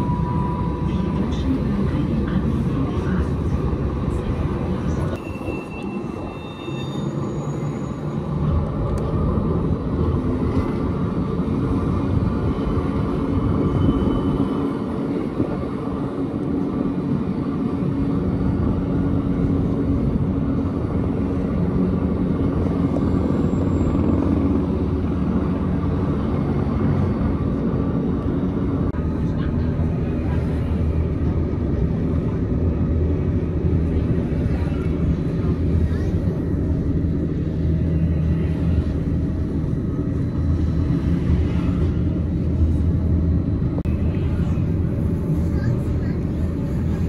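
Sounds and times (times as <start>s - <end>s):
train motors rumbling and humming: 0.0s - 47.0s.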